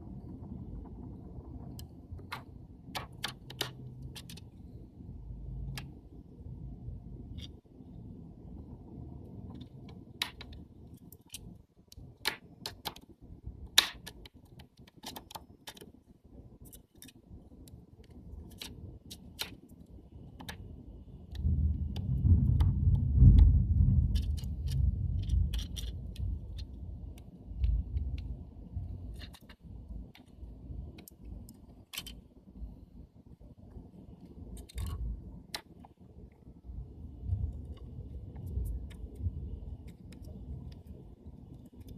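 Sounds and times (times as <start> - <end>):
low rumble: 0.0 - 2.8, 21.3 - 30.9, 36.3 - 41.2.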